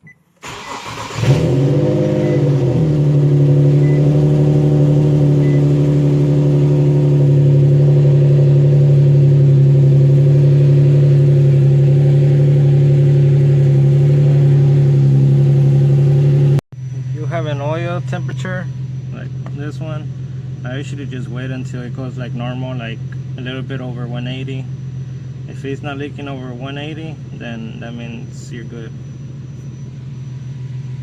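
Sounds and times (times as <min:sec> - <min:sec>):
car engine idling: 0:00.3 - 0:31.0.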